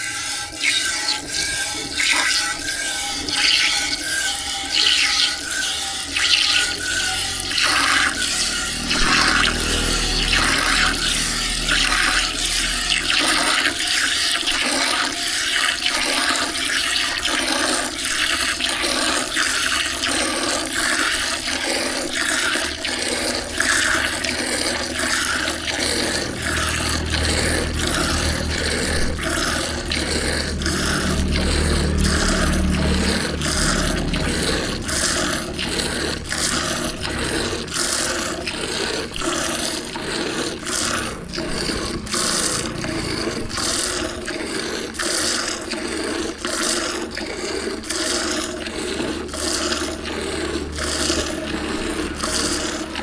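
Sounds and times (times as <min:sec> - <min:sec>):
milk squirting into a pail: 0:00.0 - 0:53.0
low hum: 0:06.1 - 0:14.8, 0:22.9 - 0:44.8.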